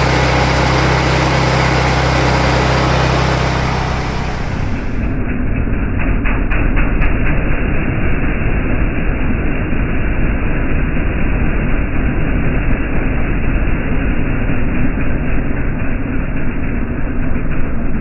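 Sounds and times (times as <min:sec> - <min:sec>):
vehicle engine rumble: 0:00.0 - 0:05.2.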